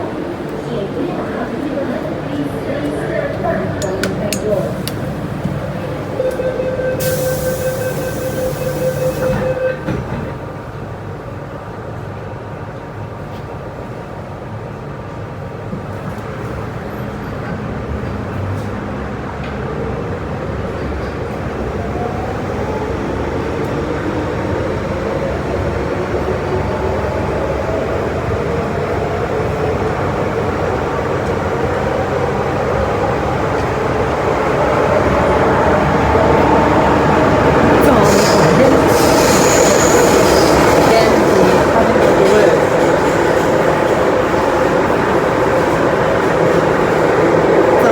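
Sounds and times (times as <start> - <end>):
train wheels rumbling: 15.7 - 47.9.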